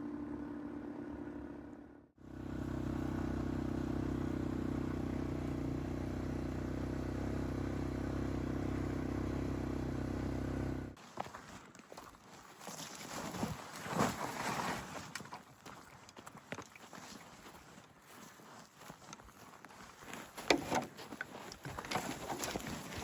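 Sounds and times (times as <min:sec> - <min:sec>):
atv engine running: 0:02.2 - 0:11.0.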